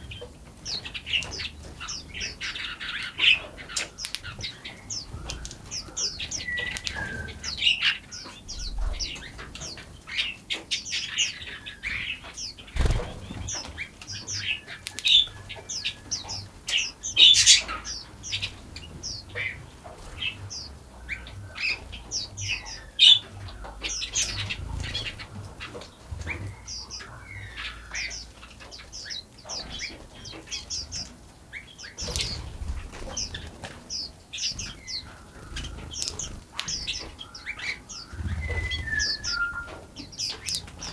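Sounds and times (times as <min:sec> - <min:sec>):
songbirds chirping and singing: 0:00.0 - 0:40.9
low thumps: 0:12.8 - 0:13.6.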